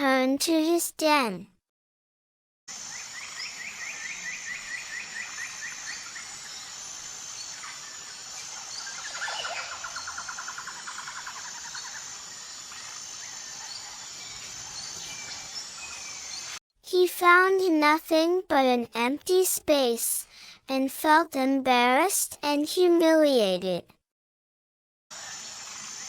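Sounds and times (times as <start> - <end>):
high insect drone: 2.7 - 16.6, 25.1 - 26.0
bird chirping: 2.8 - 16.6
birds calling: 2.9 - 16.6.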